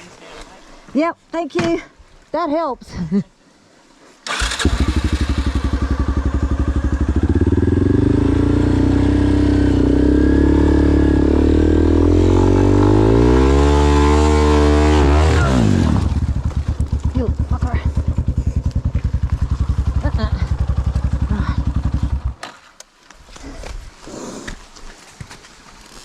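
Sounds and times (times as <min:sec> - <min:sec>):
motorcycle engine starting and revving: 0:04.2 - 0:22.4.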